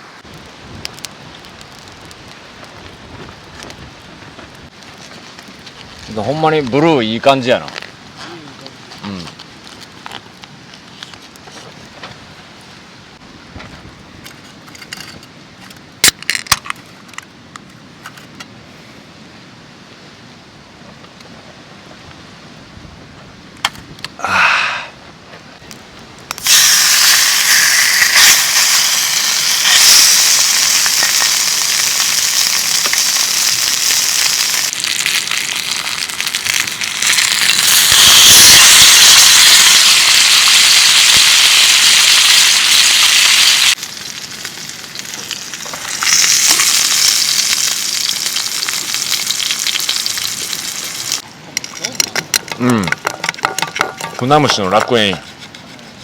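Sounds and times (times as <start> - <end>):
food sizzling in a hot pan: 26.4 - 51.2
handling clicks and knocks: 51.6 - 55.2.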